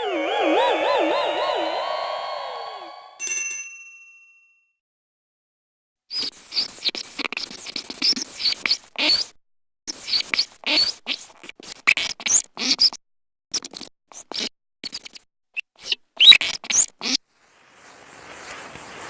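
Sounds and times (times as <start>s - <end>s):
scratchy rustle: 17.3s - 19.0s.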